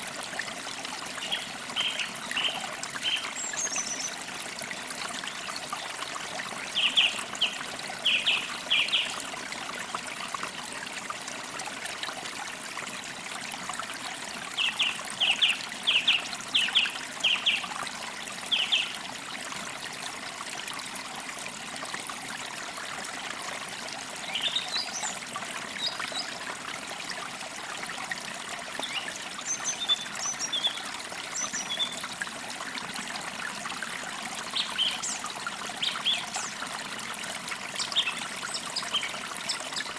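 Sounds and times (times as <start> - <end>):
stream trickling: 0.0 - 39.9
forest birds singing: 6.7 - 9.2, 18.5 - 18.9, 24.2 - 25.2, 28.8 - 30.8, 31.4 - 32.0, 34.5 - 35.2, 35.8 - 36.6, 37.8 - 39.9.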